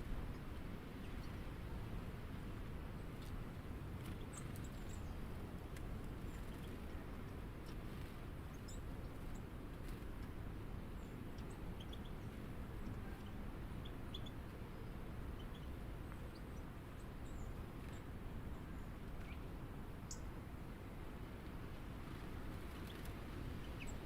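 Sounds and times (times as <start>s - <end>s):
low outdoor rumble: 0.0s - 24.0s
small birds chirping: 3.9s - 20.3s, 22.0s - 24.0s.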